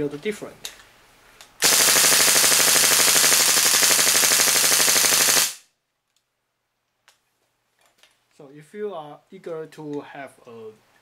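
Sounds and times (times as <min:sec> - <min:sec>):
airsoft rifle full-auto burst: 0:01.6 - 0:05.6.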